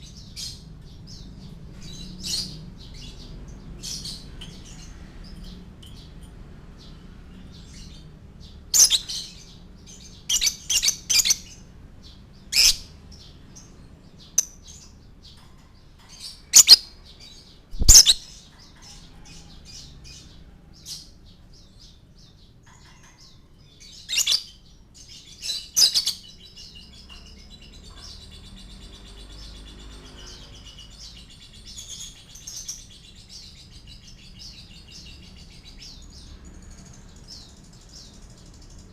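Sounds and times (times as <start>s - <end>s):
lovebird chirping and trilling: 8.7s - 11.7s, 12.5s - 13.0s, 16.1s - 20.2s, 23.8s - 24.6s, 25.3s - 28.0s.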